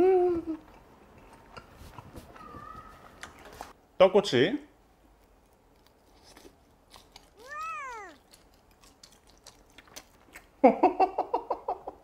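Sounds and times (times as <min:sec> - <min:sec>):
crunchy chewing: 0:05.1 - 0:10.6.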